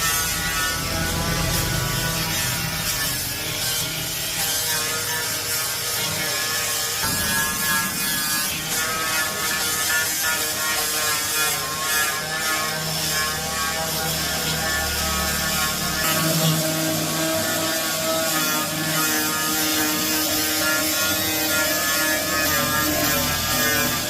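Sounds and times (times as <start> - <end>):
power tool rattling: 0.0 - 18.0.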